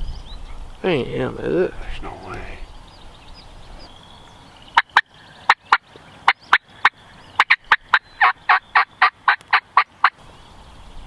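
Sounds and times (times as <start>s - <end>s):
wild turkey clucking: 4.8s - 10.2s.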